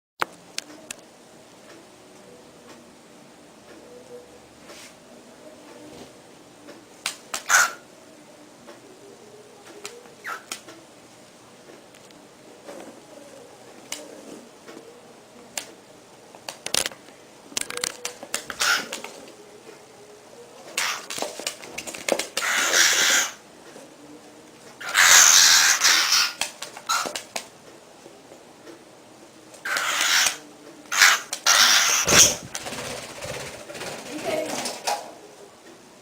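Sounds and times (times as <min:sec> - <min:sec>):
harsh bird calls: 0:07.4 - 0:07.9, 0:18.5 - 0:19.1, 0:22.4 - 0:23.4, 0:24.8 - 0:27.2, 0:29.6 - 0:33.5.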